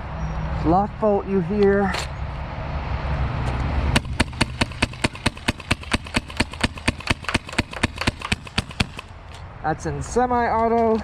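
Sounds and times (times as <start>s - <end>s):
paintball marker shots: 4.0s - 9.2s.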